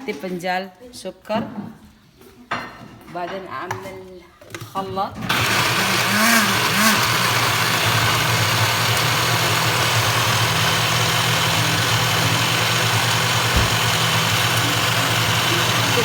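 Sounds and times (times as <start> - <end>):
electric blender running: 5.3 - 16.0.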